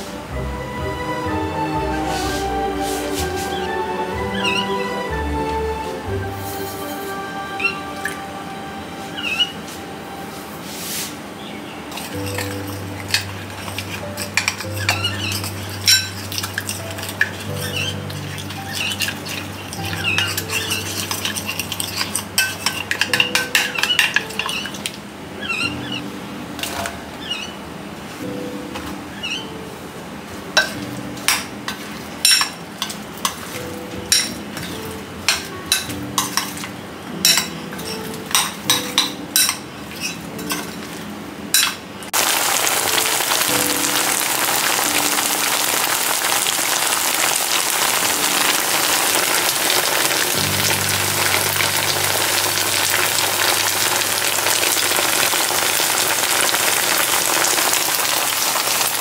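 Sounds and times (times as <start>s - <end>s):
deep-frying sizzle: 11.9s - 26.0s, 41.6s - 59.0s.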